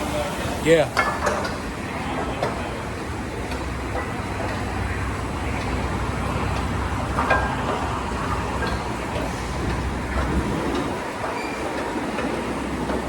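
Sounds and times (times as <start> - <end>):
car wash machinery din: 0.0 - 13.0.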